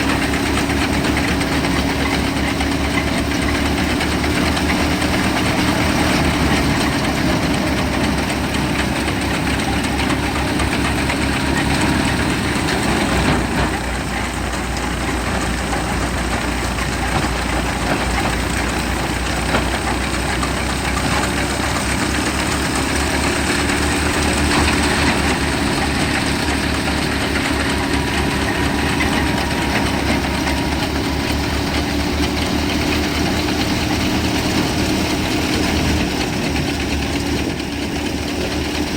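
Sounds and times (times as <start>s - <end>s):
threshing machine rushing: 0.0s - 38.9s
tractor engine knocking: 0.0s - 38.9s.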